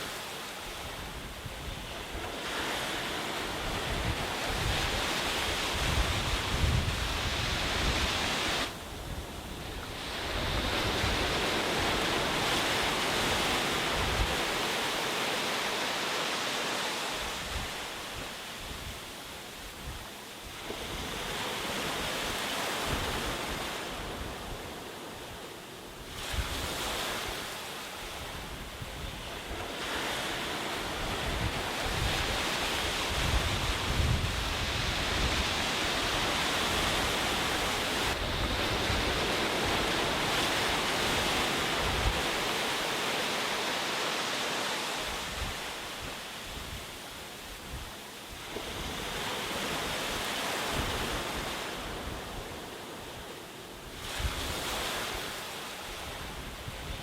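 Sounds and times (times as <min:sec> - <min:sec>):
sea waves breaking on beach: 0:00.0 - 0:57.0
wind buffeting microphone: 0:00.8 - 0:14.7, 0:28.1 - 0:42.8.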